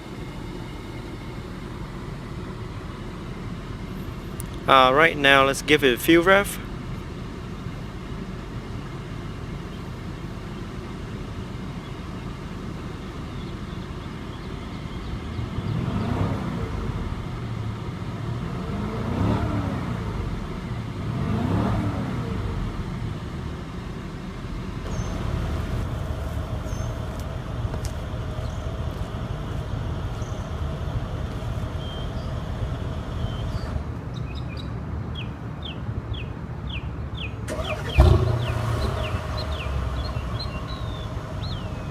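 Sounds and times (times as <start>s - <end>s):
car engine idling: 0.0s - 34.2s, 37.2s - 41.9s
engine revving: 15.3s - 23.0s, 37.5s - 41.9s.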